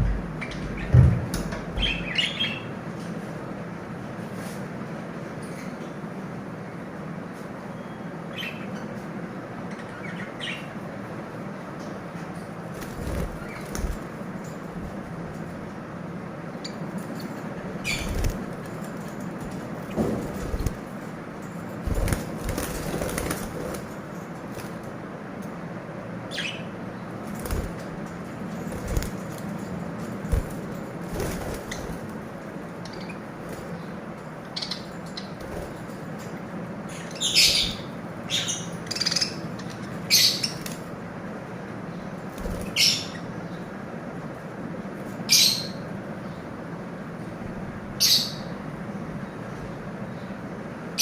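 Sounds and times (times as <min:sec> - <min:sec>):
birds fluttering wings: 0:12.6 - 0:15.6, 0:17.0 - 0:25.0, 0:27.2 - 0:34.2, 0:35.0 - 0:36.3, 0:42.2 - 0:43.0
lovebirds chirping: 0:16.5 - 0:18.9, 0:30.3 - 0:35.7.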